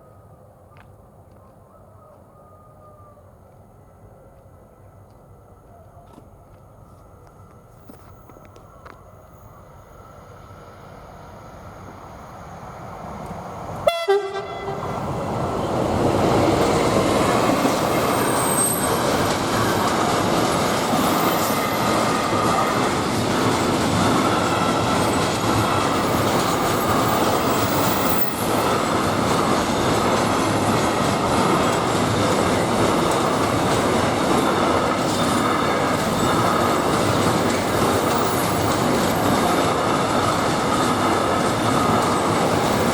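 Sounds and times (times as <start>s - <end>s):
train horn blast: 13.8s - 15.1s
faint high wheel squeals: 17.5s - 19.9s.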